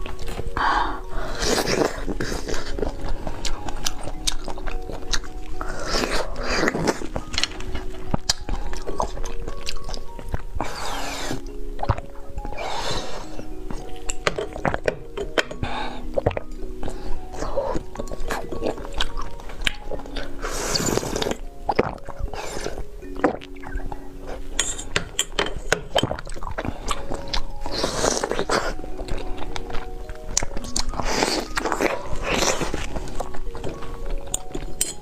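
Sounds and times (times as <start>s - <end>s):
soft background music: 0.0s - 35.0s
crisp bites and chewing: 13.3s - 35.0s.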